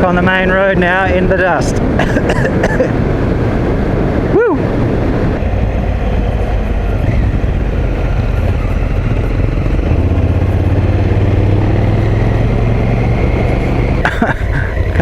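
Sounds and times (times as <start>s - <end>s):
wind and road noise: 0.0s - 15.0s
motorcycle engine running: 5.0s - 15.0s.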